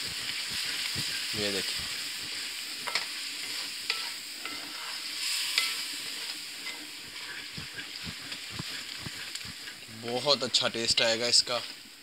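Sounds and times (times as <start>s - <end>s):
wooden spatula scraping a pan: 0.0s - 11.6s
beans sizzling in a pan: 0.0s - 12.0s.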